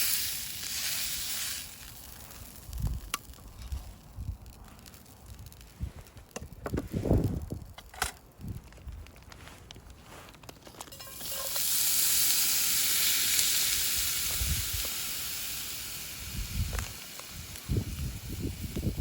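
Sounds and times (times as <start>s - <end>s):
food sizzling in a hot pan: 0.0s - 2.9s, 10.9s - 19.0s.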